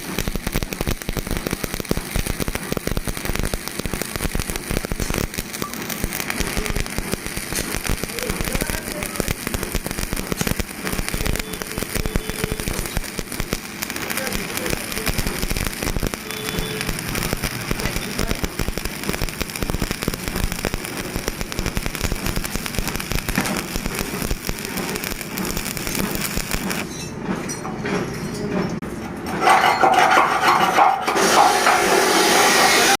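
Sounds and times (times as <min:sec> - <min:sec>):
arc welding crackling: 0:00.0 - 0:26.9, 0:31.2 - 0:33.0.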